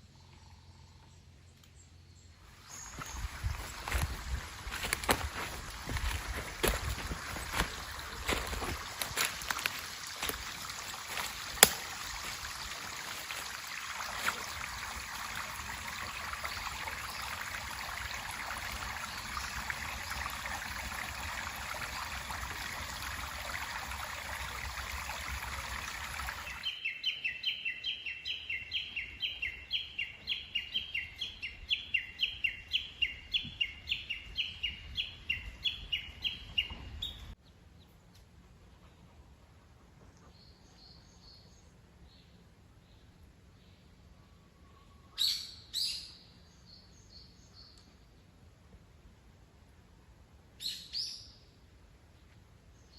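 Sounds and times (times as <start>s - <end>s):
mountain stream rushing: 2.8s - 26.7s.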